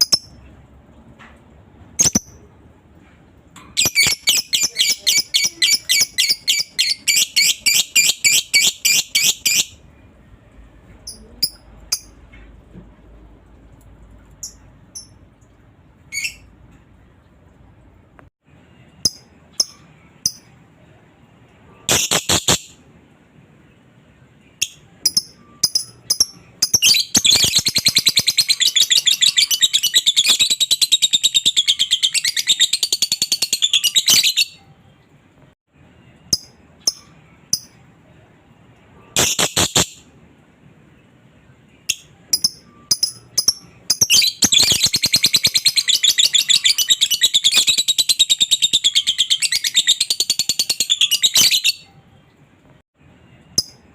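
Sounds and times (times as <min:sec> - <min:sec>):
lovebird chirping and chattering: 0:00.0 - 0:00.4, 0:02.0 - 0:02.4, 0:03.8 - 0:09.8, 0:11.0 - 0:12.2, 0:19.0 - 0:20.5, 0:24.6 - 0:34.6, 0:36.3 - 0:37.8, 0:39.2 - 0:40.0, 0:41.9 - 0:51.9.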